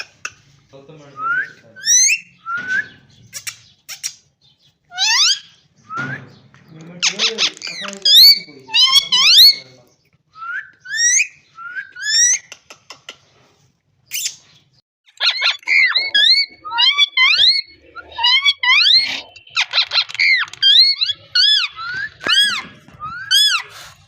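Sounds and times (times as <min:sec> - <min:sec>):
parrot whistling: 0:10.4 - 0:12.4, 0:15.2 - 0:23.7.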